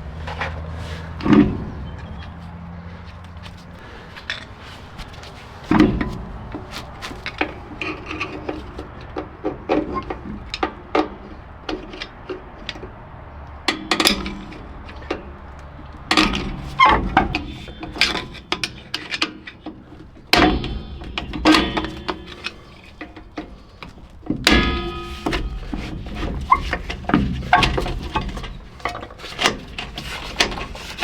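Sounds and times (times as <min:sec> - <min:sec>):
metal tools clinking and scraping: 0:00.2 - 0:31.0
heavy metal knocks: 0:01.0 - 0:30.8.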